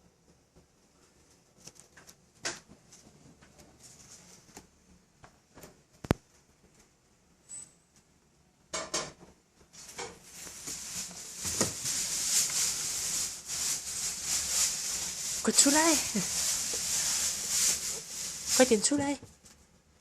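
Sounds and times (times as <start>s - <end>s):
scraping rustling noise: 1.0s - 4.8s, 9.7s - 19.8s.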